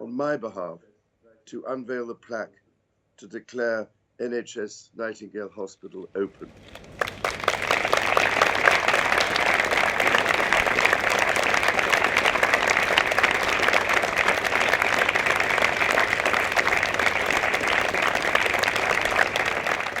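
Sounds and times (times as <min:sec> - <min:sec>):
crowd applause: 0:06.4 - 0:20.0.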